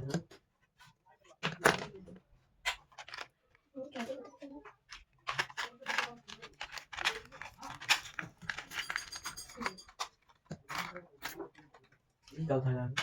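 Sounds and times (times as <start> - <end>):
metal parts and tools clinking: 5.3 - 12.4
ringing metal clink: 8.7 - 10.0.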